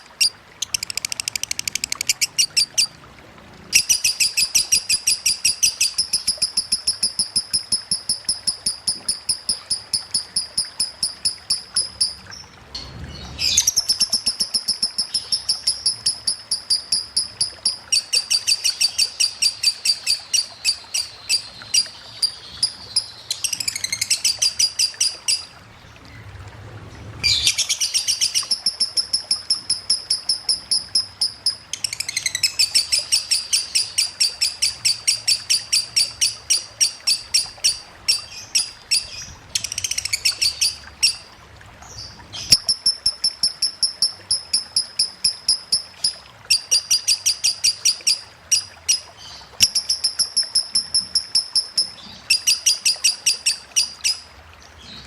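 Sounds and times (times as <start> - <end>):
lovebird rapid high chirps: 0.0 - 2.9, 3.8 - 12.2, 49.6 - 54.2.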